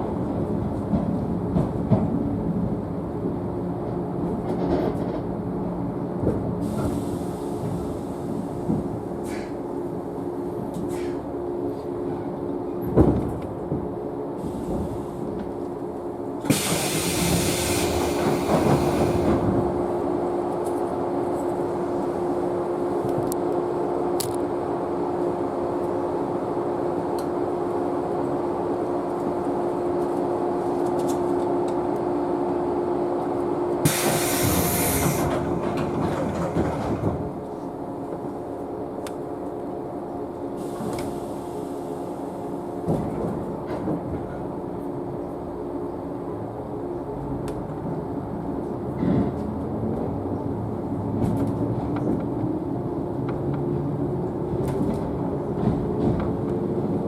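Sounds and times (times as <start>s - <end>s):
train car mechanical noise: 0.0s - 57.0s
air hissing bursts: 16.5s - 19.2s, 33.8s - 35.3s.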